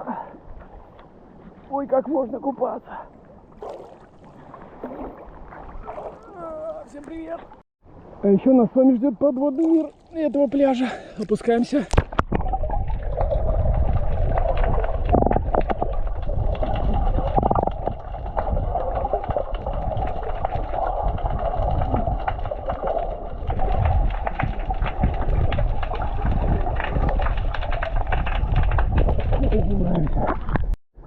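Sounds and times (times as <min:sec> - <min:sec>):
underwater rumble of moving water: 0:09.2 - 0:30.8
faint crackling clicks: 0:14.0 - 0:30.8.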